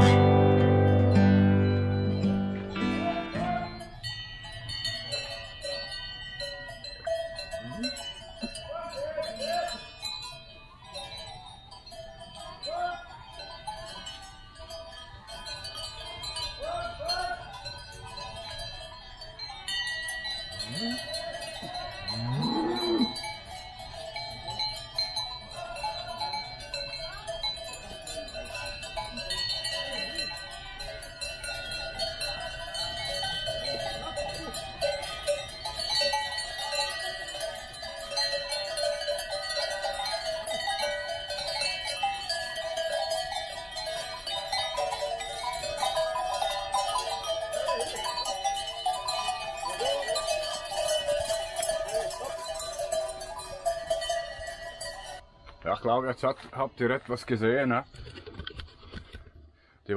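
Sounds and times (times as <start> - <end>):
cowbells clanking: 0.0 - 57.6
cow lowing: 22.1 - 23.2.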